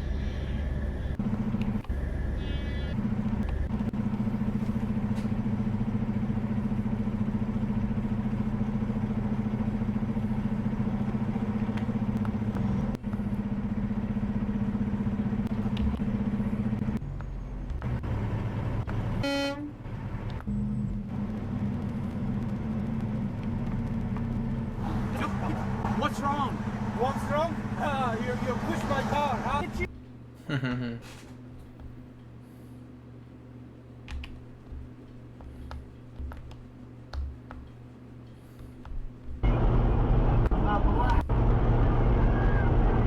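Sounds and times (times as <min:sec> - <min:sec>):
vehicle engine droning: 0:00.0 - 0:29.9, 0:38.4 - 0:43.0
short horn blast: 0:19.2 - 0:19.8.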